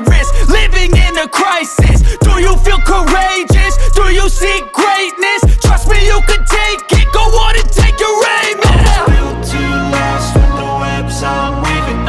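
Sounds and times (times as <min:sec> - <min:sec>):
hip hop music: 0:00.0 - 0:12.0
heavy sustained bass notes: 0:00.2 - 0:01.0, 0:02.0 - 0:04.6, 0:05.7 - 0:07.8.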